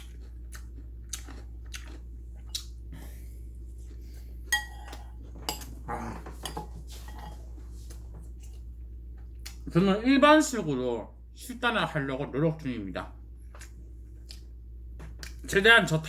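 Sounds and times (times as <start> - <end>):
utensils clinking on dishes: 4.5 - 5.8.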